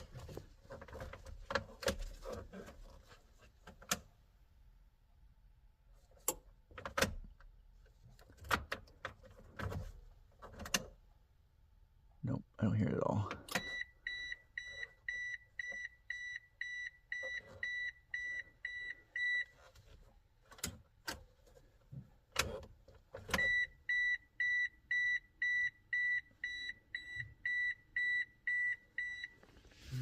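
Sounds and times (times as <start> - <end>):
car warning chime beeping: 13.4 - 19.6, 23.3 - 29.4.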